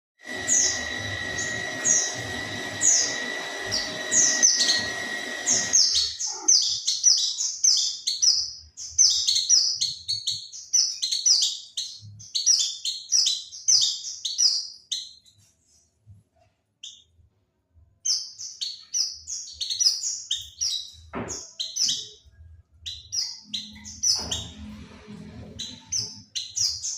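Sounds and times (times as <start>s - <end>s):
steady background hum: 0.2s - 6.7s
high downward-slurred bird chirps: 0.2s - 15.2s, 18.1s - 24.6s, 25.4s - 26.9s.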